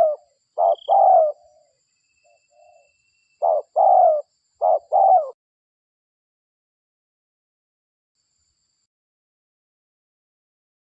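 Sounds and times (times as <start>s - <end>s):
dove cooing: 0.0s - 1.6s, 2.6s - 5.4s.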